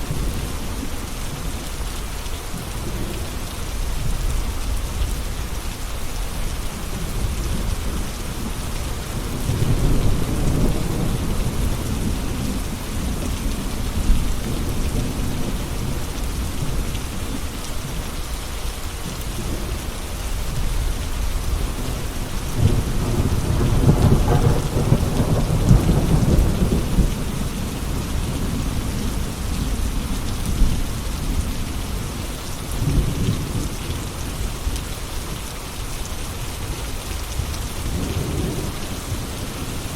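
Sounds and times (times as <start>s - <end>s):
steady rain: 0.0s - 39.9s
thunder rumbling: 6.7s - 16.9s, 19.4s - 32.2s.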